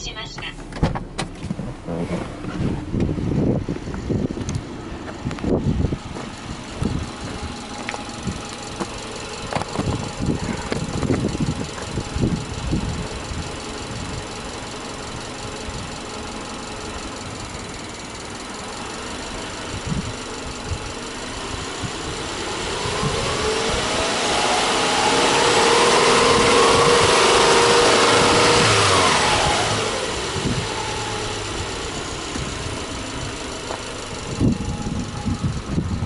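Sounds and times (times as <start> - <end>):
car engine idling: 0.0 - 36.0
car engine revving: 0.0 - 36.0
dull bumps: 0.5 - 12.9.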